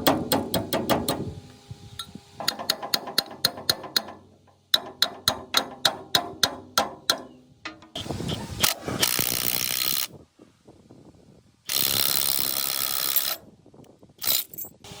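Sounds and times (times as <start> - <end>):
hammer striking metal: 2.4 - 8.0.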